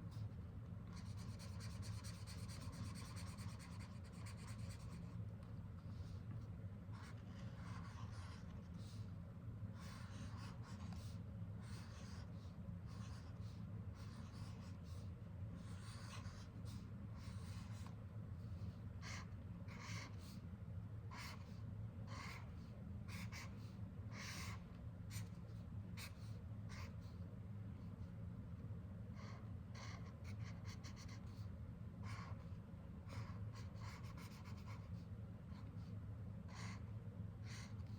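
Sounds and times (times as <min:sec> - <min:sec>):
steady low hum: 0:00.0 - 0:37.9
marker scratching on paper: 0:00.9 - 0:05.2, 0:06.9 - 0:09.0, 0:09.8 - 0:17.9, 0:19.0 - 0:20.3, 0:21.1 - 0:22.5, 0:23.1 - 0:25.4, 0:26.0 - 0:27.0, 0:29.2 - 0:32.4, 0:33.1 - 0:35.0, 0:36.5 - 0:37.9.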